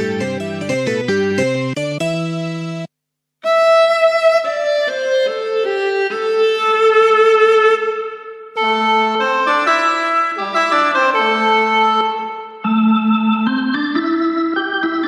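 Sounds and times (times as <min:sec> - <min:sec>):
keyboard chords: 0:00.0 - 0:02.9, 0:08.5 - 0:15.0
violin voice slow melody: 0:03.4 - 0:12.9.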